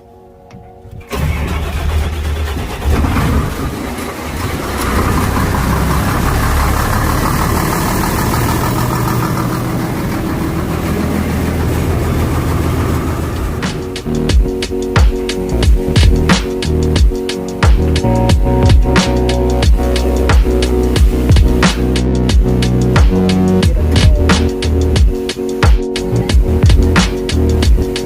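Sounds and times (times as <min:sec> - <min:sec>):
generator engine starting and running: 0:00.6 - 0:28.0.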